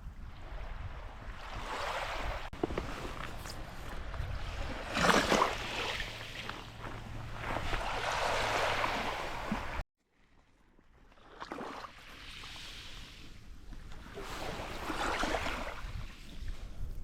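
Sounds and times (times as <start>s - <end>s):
surf washing up the beach: 0.0s - 9.8s
wind rumbling on microphone: 0.0s - 9.8s, 12.6s - 17.0s.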